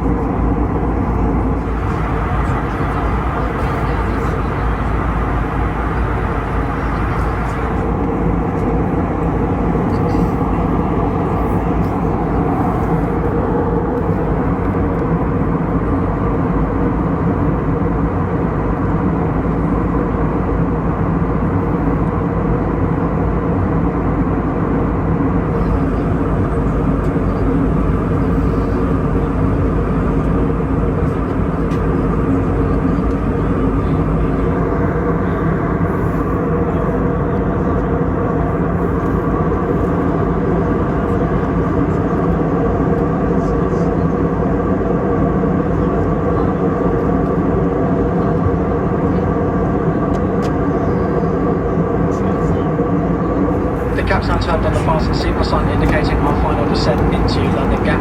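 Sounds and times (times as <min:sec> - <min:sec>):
aircraft engine hum: 0:00.0 - 0:58.0
rush of airflow: 0:01.0 - 0:14.9, 0:53.5 - 0:58.0.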